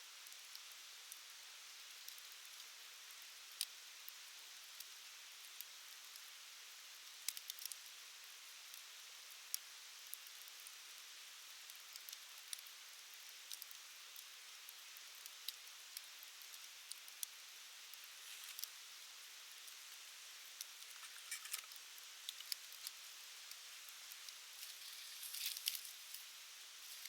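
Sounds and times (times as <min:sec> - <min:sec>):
wood fire crackling: 0:11.7 - 0:27.0.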